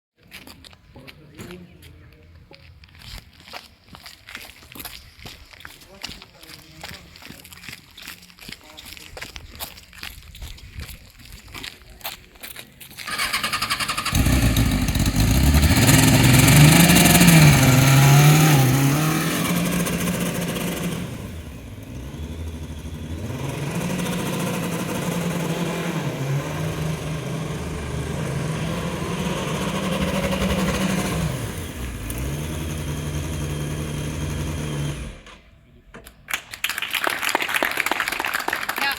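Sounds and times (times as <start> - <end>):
engine revving: 13.1 - 35.4.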